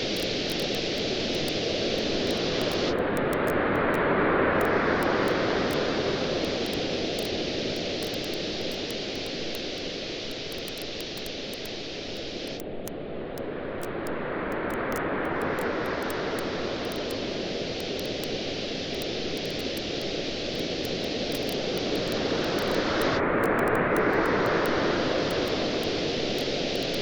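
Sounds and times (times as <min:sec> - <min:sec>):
waves washing onto beach: 0:00.0 - 0:12.6, 0:13.5 - 0:27.0
wood fire crackling and popping: 0:06.4 - 0:11.8.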